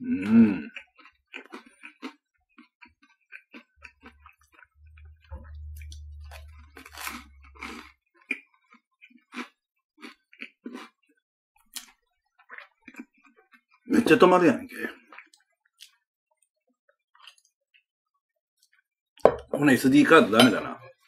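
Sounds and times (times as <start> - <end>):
chewing bread: 0.0 - 19.0
low hum: 4.7 - 7.6.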